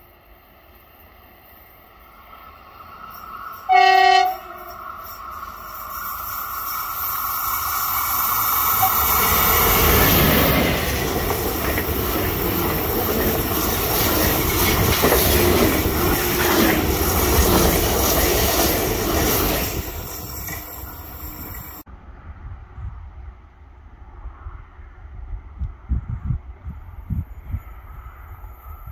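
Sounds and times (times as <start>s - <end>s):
passenger train passing: 0.0s - 28.9s
wheels clicking over rail joints: 4.4s - 21.8s.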